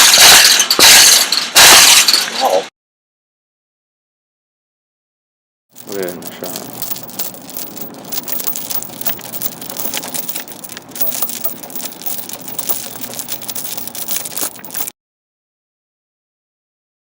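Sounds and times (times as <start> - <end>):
crackling patter of clicks: 5.8 - 14.9.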